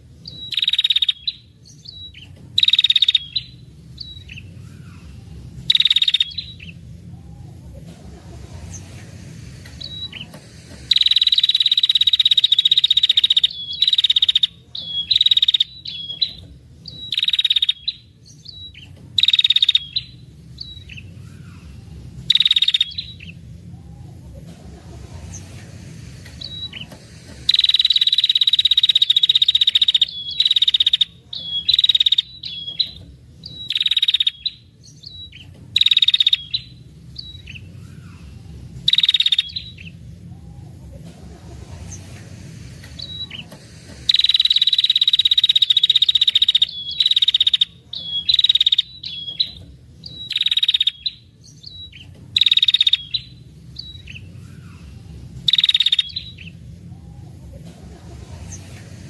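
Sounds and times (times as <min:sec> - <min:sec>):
bird buzzy trilling calls: 0:00.0 - 0:59.0.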